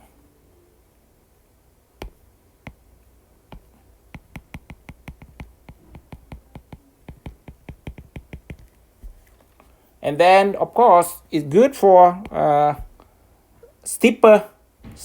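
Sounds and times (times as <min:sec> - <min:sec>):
stylus tapping on tablet screen: 0:02.0 - 0:02.9, 0:03.5 - 0:09.3, 0:12.2 - 0:13.0.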